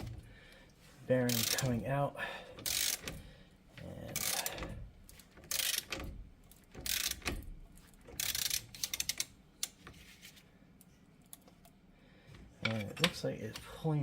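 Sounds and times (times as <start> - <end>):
ratchet wrench clicking: 1.3 - 1.7, 2.6 - 3.2, 4.2 - 4.7, 5.4 - 6.1, 6.8 - 7.4, 8.2 - 9.8.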